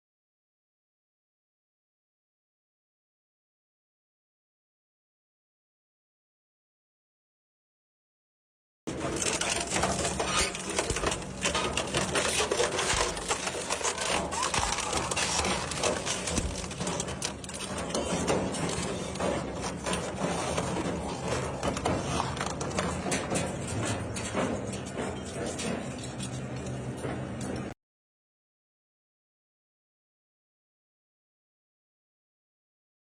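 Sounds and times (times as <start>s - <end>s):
shredder grinding metal: 8.9s - 26.8s.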